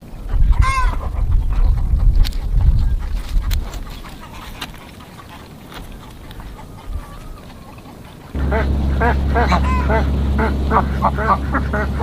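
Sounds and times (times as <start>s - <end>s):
ducks quacking: 0.1s - 12.0s
steady low hum: 8.3s - 12.0s.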